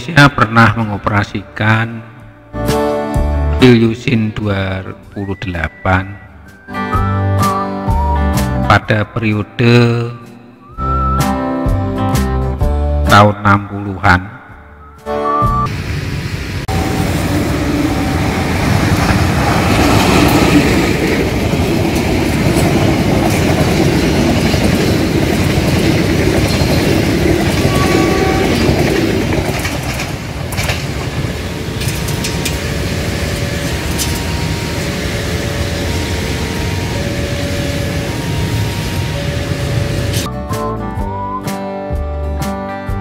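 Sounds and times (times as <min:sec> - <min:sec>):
diesel train passing: 0:15.5 - 0:40.6.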